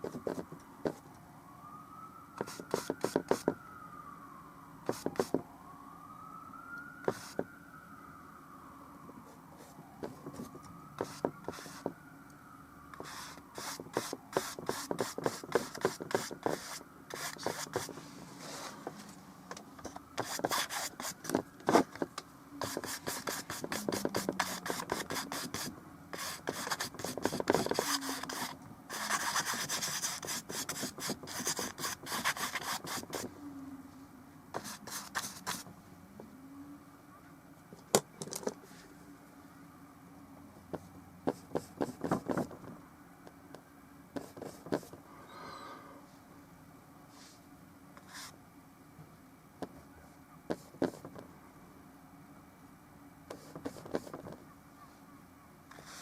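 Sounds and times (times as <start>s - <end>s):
paintbrush scratchy strokes: 13.0s - 18.8s, 22.6s - 33.3s.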